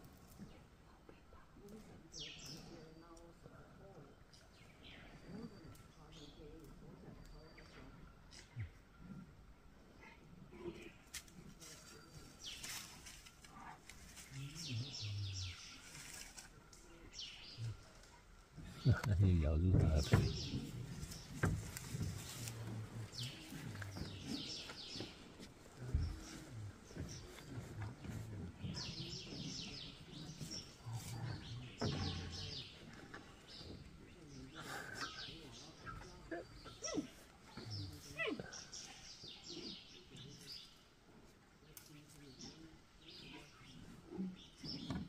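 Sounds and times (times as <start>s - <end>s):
low steady background noise: 0.0s - 45.0s
songbird chirping: 0.0s - 45.0s.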